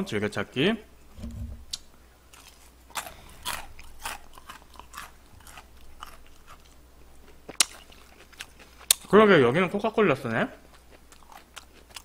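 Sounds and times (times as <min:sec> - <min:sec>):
crunchy chewing of fried chicken: 0:02.3 - 0:09.2, 0:10.5 - 0:12.0.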